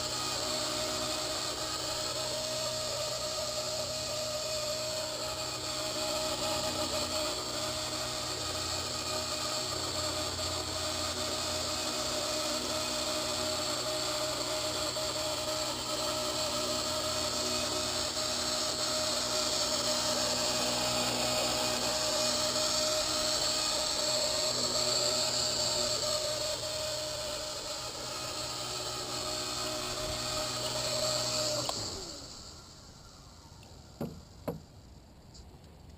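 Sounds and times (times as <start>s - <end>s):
rotor winding down: 0.0s - 35.0s
toy helicopter motor whine: 0.0s - 35.5s
light knocks: 34.0s - 34.7s.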